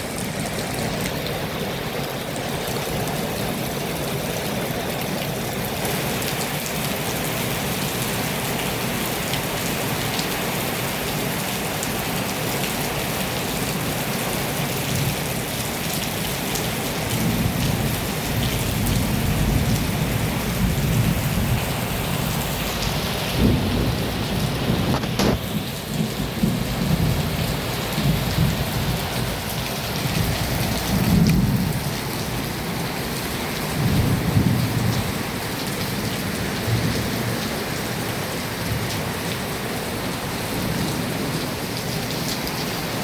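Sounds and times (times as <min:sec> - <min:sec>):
heavy rain pouring: 0:00.0 - 0:43.0
thunder rolling: 0:22.8 - 0:29.3
sharp thunder crack: 0:23.4 - 0:25.6.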